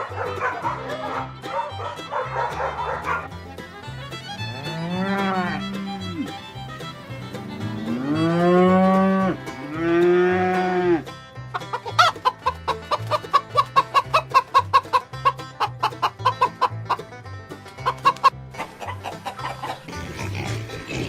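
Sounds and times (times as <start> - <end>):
chickens clucking: 0.0 - 21.0
faint backing music: 0.0 - 21.0
cow mooing: 4.4 - 6.4, 7.4 - 11.1.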